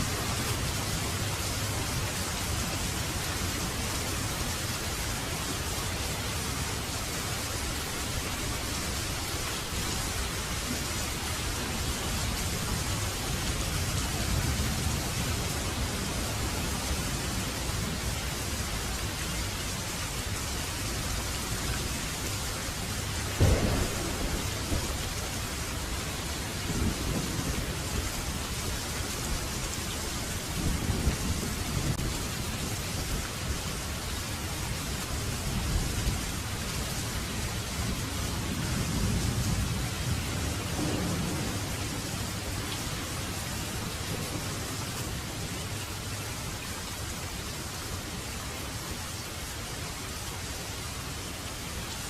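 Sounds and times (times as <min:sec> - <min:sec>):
heavy rain falling: 0:00.0 - 0:52.0
thunder clap: 0:23.4 - 0:27.7, 0:40.7 - 0:42.2
rolls of thunder: 0:23.4 - 0:27.8, 0:38.9 - 0:42.5.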